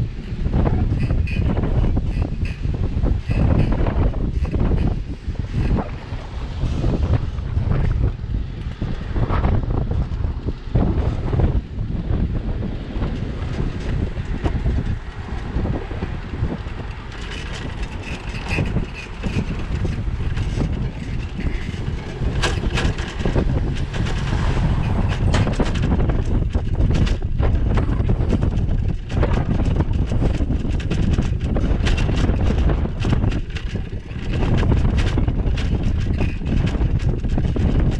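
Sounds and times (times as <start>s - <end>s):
wind buffeting microphone: 0.0s - 37.9s
bike knocks and rattles: 0.1s - 37.9s.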